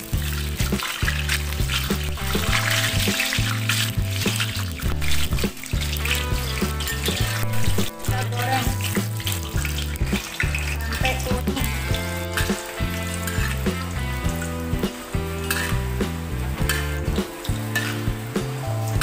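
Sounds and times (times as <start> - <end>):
background music with bass: 0.0 - 19.0
nuts sizzling in hot oil: 0.0 - 19.0
metal spatula scraping a wok: 8.8 - 14.0, 15.4 - 15.9, 16.6 - 17.0, 17.7 - 18.1.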